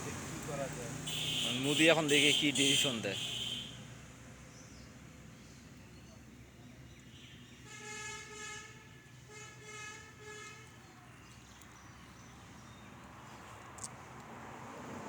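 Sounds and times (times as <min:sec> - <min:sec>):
vehicle horn honking: 0:01.0 - 0:03.8, 0:07.7 - 0:10.7.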